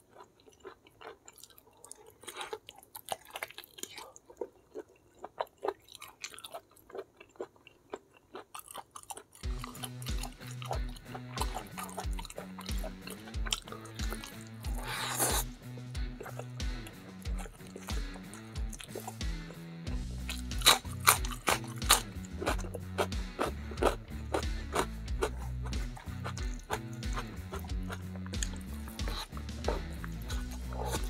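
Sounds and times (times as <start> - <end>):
close chewing and gnawing: 0.0 - 31.0
music with steady bass beat: 9.4 - 31.0.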